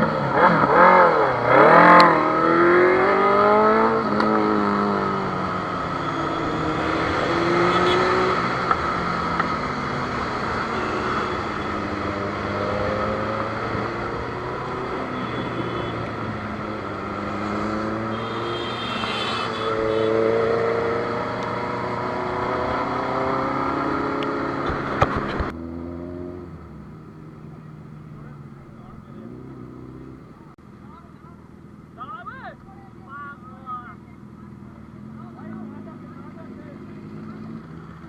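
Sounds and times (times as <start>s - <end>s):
motorcycle engines revving: 0.0s - 38.0s
road and wind noise: 0.0s - 38.0s.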